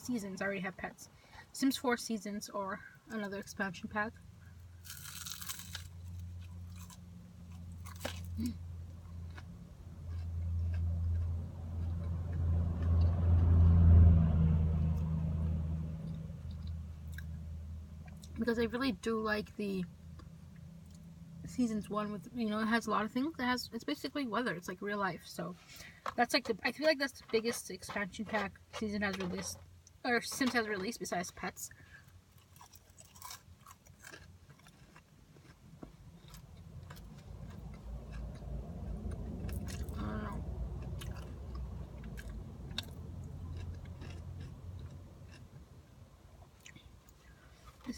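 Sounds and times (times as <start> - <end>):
vehicle rumble passing: 4.2 - 22.6, 35.6 - 47.9
mouth clicks and crunches: 4.8 - 7.0, 7.6 - 12.4, 32.3 - 45.7
chewing food: 4.8 - 13.2, 16.0 - 17.4, 32.3 - 47.9.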